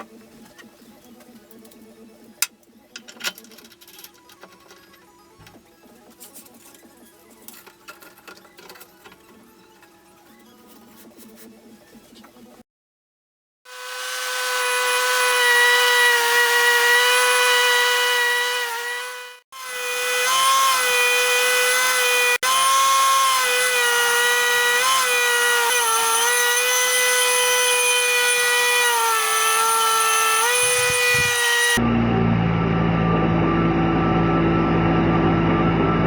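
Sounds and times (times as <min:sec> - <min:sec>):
belt grinder high whine: 0:13.7 - 0:36.0.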